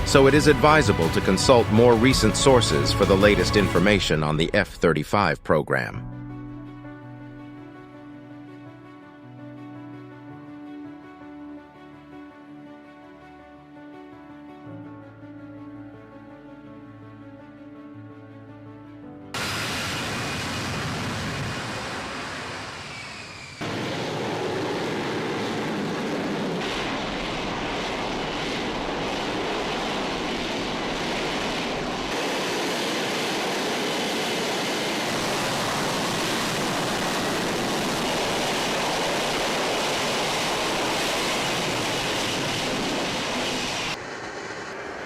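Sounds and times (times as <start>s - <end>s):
loud jet engine rushing: 0.0s - 4.4s, 19.3s - 45.0s.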